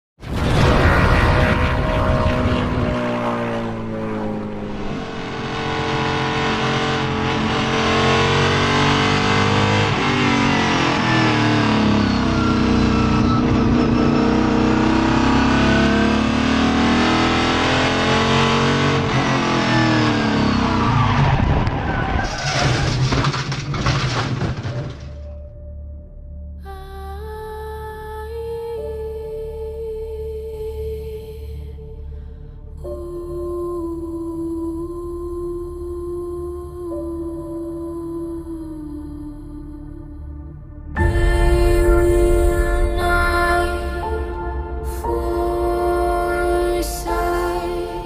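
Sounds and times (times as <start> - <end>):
truck engine running hard: 1.2 - 22.0.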